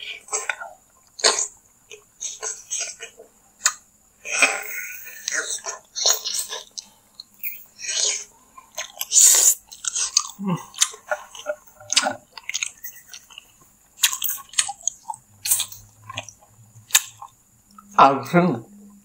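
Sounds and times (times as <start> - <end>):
chewing and biting meat: 5.1 - 17.4
wet mouth sounds and clicks: 8.8 - 17.9.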